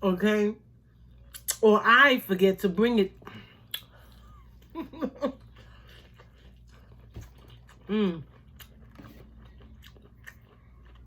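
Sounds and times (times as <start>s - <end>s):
chewing: 5.4s - 11.0s.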